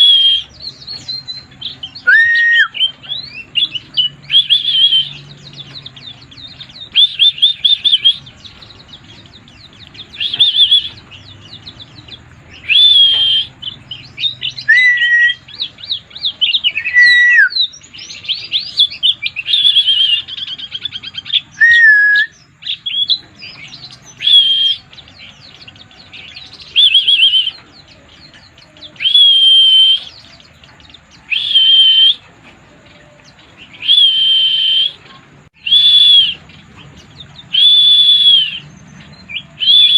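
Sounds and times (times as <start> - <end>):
bird trilling song: 0.0 - 39.9.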